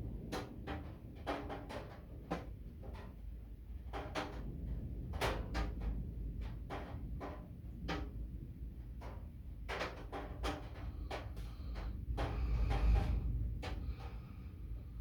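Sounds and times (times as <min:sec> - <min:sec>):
low rumble: 0:11.4 - 0:15.0.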